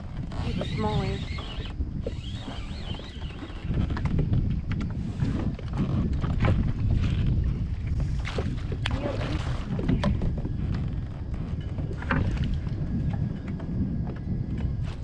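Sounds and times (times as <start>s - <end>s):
wind rumbling on microphone: 0.0s - 15.0s
water splashes: 8.1s - 10.3s.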